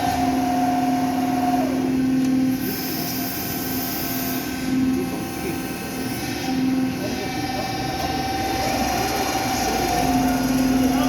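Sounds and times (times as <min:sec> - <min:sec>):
industrial machinery hum: 0:00.0 - 0:11.0.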